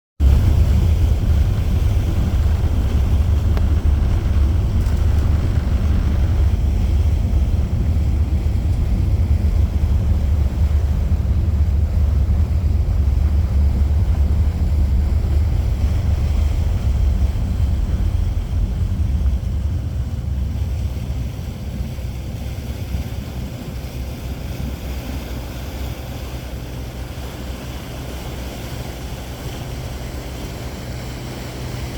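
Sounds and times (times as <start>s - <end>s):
water noise: 0.2s - 31.9s
wind buffeting microphone: 0.2s - 31.9s.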